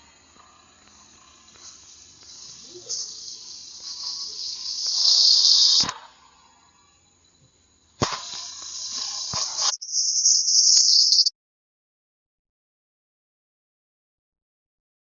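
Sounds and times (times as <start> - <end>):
loud high hiss: 0.0 - 7.1, 7.9 - 11.3
sharp click: 0.8 - 6.3, 8.0 - 11.3.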